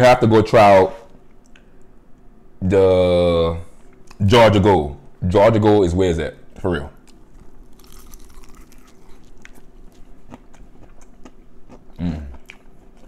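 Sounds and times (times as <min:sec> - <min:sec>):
chewing food: 0:07.0 - 0:13.0
person humming with enjoyment: 0:12.0 - 0:12.5.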